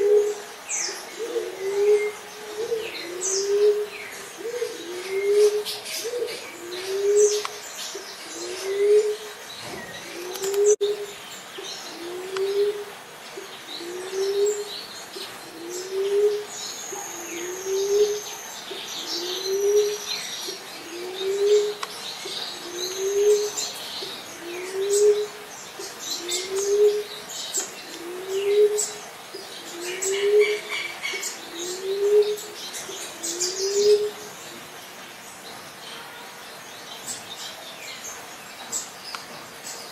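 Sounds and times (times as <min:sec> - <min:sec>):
dove cooing: 0:00.0 - 0:07.5, 0:08.2 - 0:09.4, 0:10.0 - 0:11.1, 0:11.9 - 0:18.4, 0:19.0 - 0:34.3.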